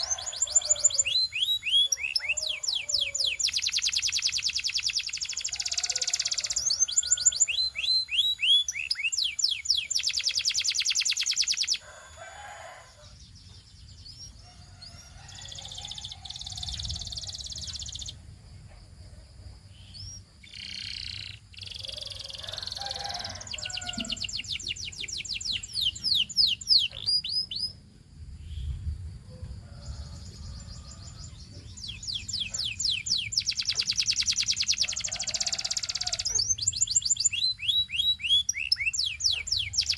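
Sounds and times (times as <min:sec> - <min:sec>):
canary singing trills: 0:00.0 - 0:18.2, 0:19.8 - 0:27.8, 0:30.1 - 0:39.9.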